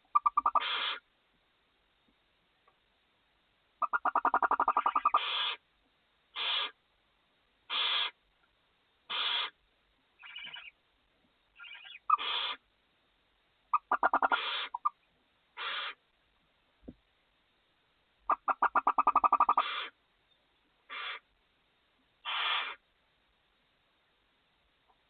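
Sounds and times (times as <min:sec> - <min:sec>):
owl chicks chittering: 0:00.1 - 0:01.0, 0:03.8 - 0:05.6, 0:06.4 - 0:06.8, 0:07.7 - 0:08.2, 0:09.1 - 0:09.6, 0:10.2 - 0:10.8, 0:11.6 - 0:12.6, 0:13.7 - 0:15.0, 0:15.6 - 0:16.0, 0:18.3 - 0:19.9, 0:20.9 - 0:21.2, 0:22.2 - 0:22.8
owl chicks rasping hiss calls: 0:00.1 - 0:01.1, 0:03.8 - 0:05.6, 0:06.3 - 0:06.8, 0:07.7 - 0:08.2, 0:09.1 - 0:09.6, 0:10.2 - 0:10.8, 0:11.6 - 0:12.7, 0:13.7 - 0:15.0, 0:15.6 - 0:16.1, 0:18.3 - 0:20.0, 0:20.8 - 0:21.3, 0:22.2 - 0:22.8.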